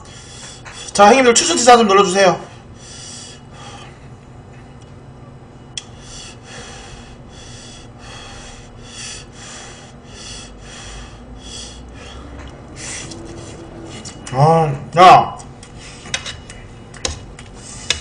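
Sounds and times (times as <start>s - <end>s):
noisy nasal breathing: 0.0s - 1.0s, 2.4s - 4.2s, 5.8s - 14.2s, 15.7s - 16.2s, 17.6s - 18.0s
man chewing food: 8.7s - 14.4s, 15.4s - 18.0s.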